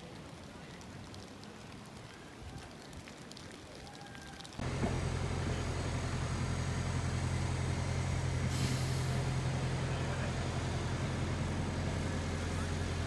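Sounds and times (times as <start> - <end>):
diesel engine droning: 4.6 - 13.0
air hiss: 8.4 - 9.3.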